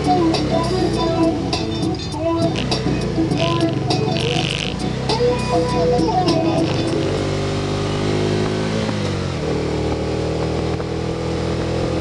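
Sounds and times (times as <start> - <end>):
music: 0.0 - 7.5
three-wheeler engine running: 0.0 - 12.0.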